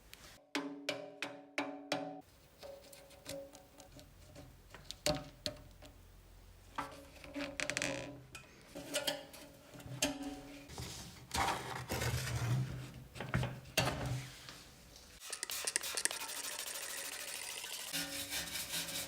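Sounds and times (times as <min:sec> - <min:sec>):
metal scraping and rubbing: 0:15.2 - 0:19.0.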